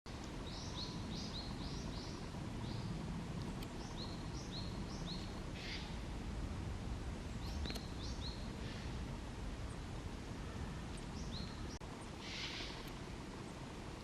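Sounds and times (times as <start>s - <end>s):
low background rumble: 0.1s - 14.0s
songbird high chirps: 0.3s - 6.0s, 7.3s - 8.9s, 10.5s - 13.5s.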